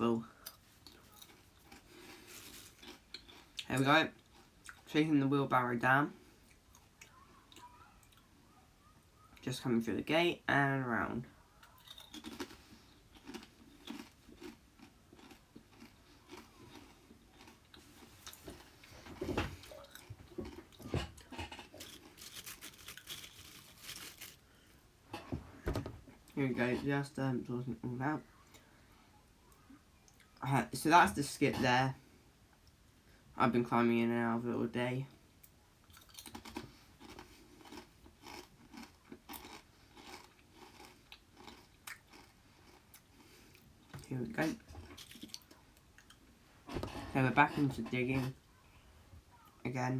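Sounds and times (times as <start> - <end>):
crunching and scraping of soil: 20.4 - 24.5.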